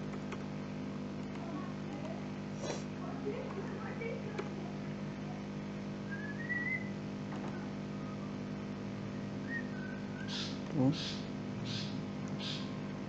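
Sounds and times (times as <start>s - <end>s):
high whistle-like chirp: 6.1s - 6.9s.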